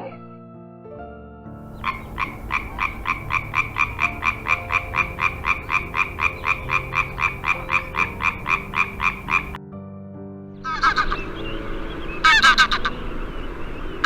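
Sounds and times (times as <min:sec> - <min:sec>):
frog croaking: 0:01.7 - 0:09.6
low steady tones: 0:01.7 - 0:09.6.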